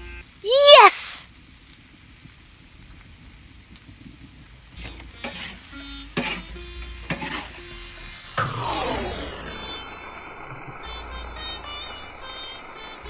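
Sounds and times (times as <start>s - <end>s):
curry sizzling in a pot: 0.0s - 0.4s, 1.2s - 8.6s, 10.6s - 13.0s
utensil stirring and scraping: 4.8s - 7.6s.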